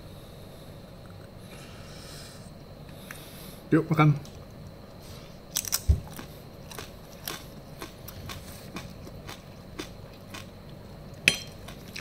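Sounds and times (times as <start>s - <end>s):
crispy pork skin crunching: 5.5s - 10.6s, 11.5s - 12.0s.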